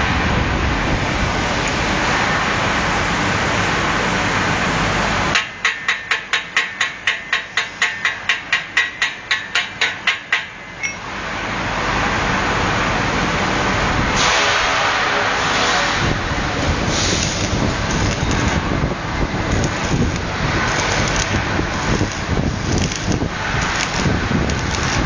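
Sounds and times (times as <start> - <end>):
air conditioner blowing: 0.0 - 25.0
rapid sharp clicks: 19.5 - 25.0.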